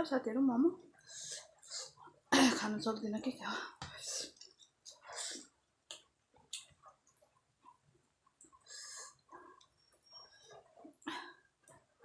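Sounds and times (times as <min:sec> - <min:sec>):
chewing and mouth smacks: 0:05.8 - 0:08.6.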